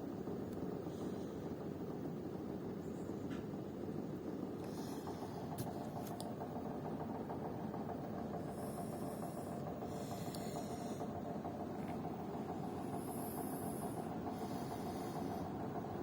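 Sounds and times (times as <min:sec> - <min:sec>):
air conditioner knocking: 0:05.6 - 0:16.0.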